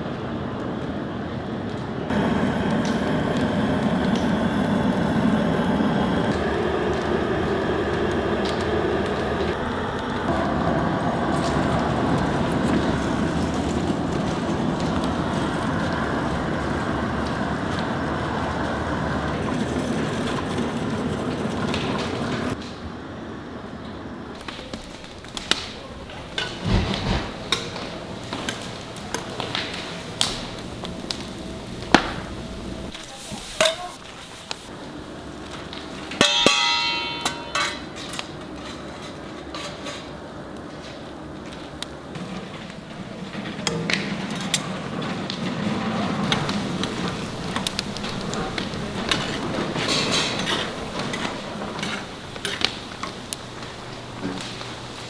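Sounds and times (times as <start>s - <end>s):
faint fire crackles: 0.0s - 55.0s
faint sizzle: 2.1s - 20.5s, 24.4s - 44.5s, 45.8s - 55.0s
rushing bubbling noise: 2.1s - 22.6s
utensils and cookware clattering: 24.4s - 34.7s, 35.4s - 55.0s.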